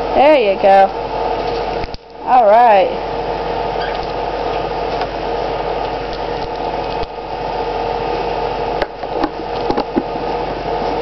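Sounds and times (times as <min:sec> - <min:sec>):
mechanical whir with low hum: 0:00.0 - 0:11.0.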